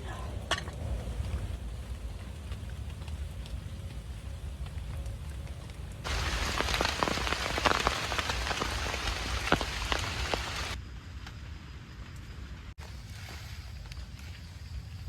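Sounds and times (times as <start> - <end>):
rain pattering: 0.0 - 10.8.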